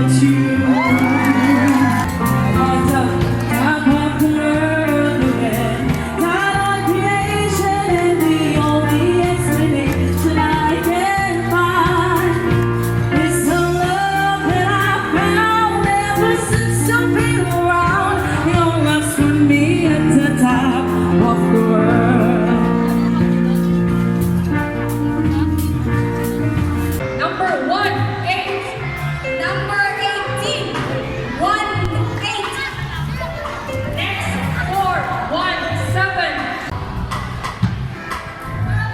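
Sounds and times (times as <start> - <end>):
person singing: 0.0 - 23.9
bass notes: 0.0 - 38.9
live band playing pop music: 0.0 - 38.9.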